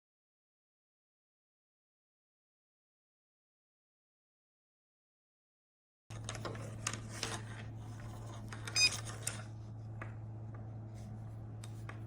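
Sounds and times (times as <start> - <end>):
steady low hum: 6.1 - 12.0.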